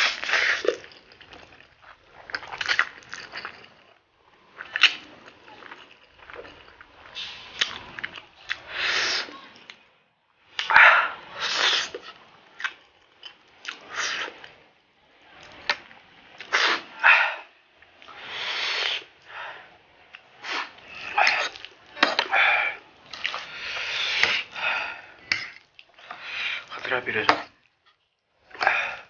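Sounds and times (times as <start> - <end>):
person slurping noodles: 0.0 - 3.8, 4.6 - 9.6, 10.7 - 12.1, 13.7 - 14.5, 16.4 - 17.1, 18.1 - 19.1, 20.4 - 21.7, 22.3 - 25.0
sharp breaths: 16.5 - 21.5, 23.4 - 26.8.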